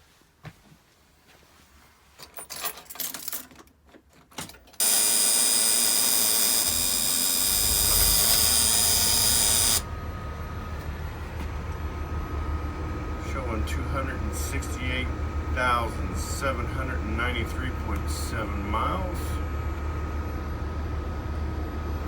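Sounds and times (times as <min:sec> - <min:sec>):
engine starter whining: 0:04.8 - 0:09.9.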